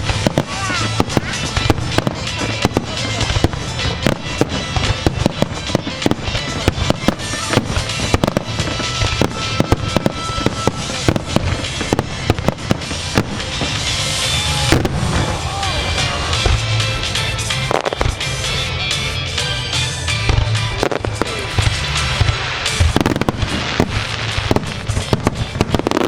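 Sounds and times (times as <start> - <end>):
continuous rumble: 0.0 - 26.0
fireworks bursting: 0.0 - 26.0
music playing: 0.0 - 26.0.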